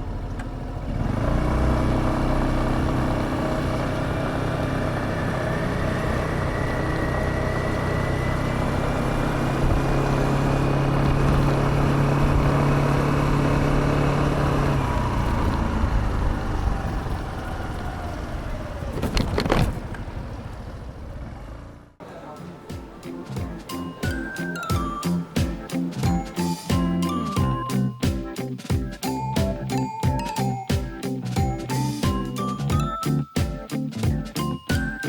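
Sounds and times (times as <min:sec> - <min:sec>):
scooter engine running: 0:00.0 - 0:22.0.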